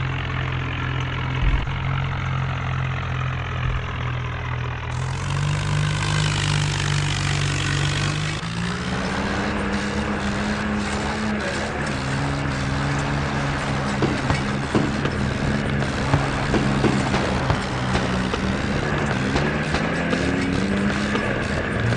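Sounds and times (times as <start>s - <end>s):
tractor diesel engine running: 0.0s - 21.9s
sharp knocks: 1.4s - 2.4s, 13.9s - 21.9s.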